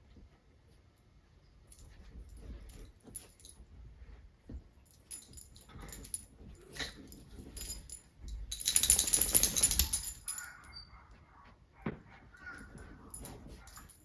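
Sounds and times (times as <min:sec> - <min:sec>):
small hard objects rattling: 0:07.6 - 0:10.4.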